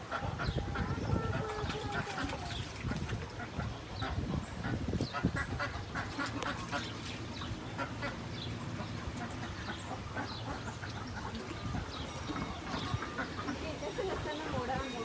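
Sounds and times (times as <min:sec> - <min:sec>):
ducks and geese calling: 0:00.0 - 0:15.0.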